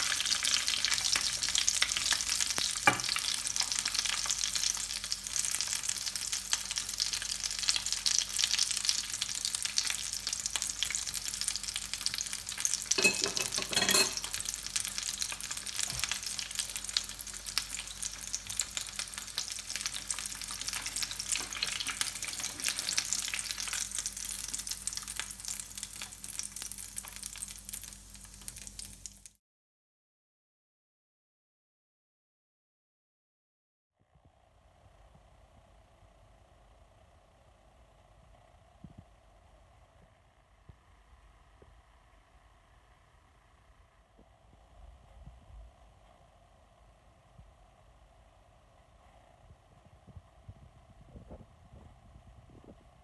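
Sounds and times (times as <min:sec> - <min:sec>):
food sizzling in hot oil: 0:00.0 - 0:29.4.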